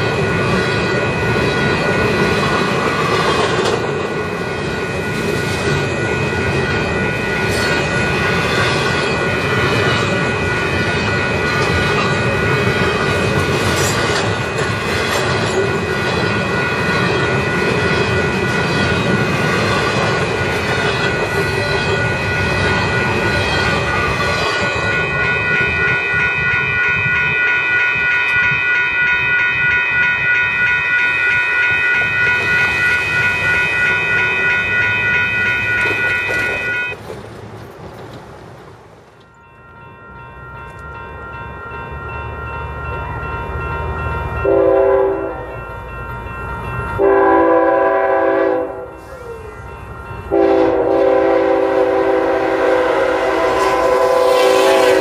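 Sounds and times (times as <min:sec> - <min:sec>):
crossing bell ringing: 0:00.0 - 0:37.0, 0:39.2 - 0:55.0
train wheels clacking on rail joints: 0:00.4 - 0:04.2, 0:10.8 - 0:24.7, 0:35.5 - 0:39.4.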